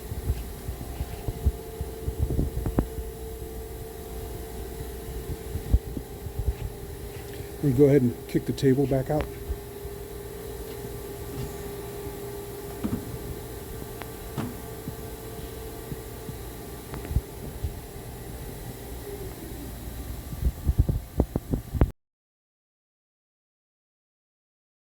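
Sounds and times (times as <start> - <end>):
tool grinder humming: 0.0 - 20.3
mechanical knocks and clunks: 12.6 - 15.0.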